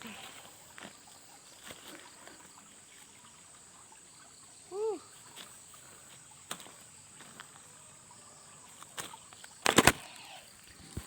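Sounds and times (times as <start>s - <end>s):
night insects droning: 0.0s - 11.0s.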